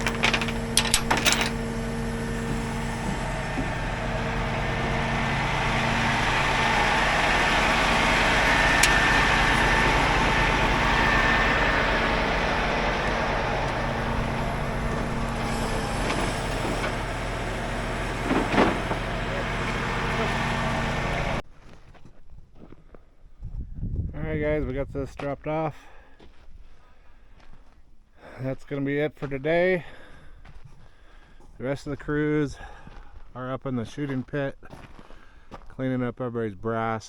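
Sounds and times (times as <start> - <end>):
truck engine running: 0.0 - 21.4.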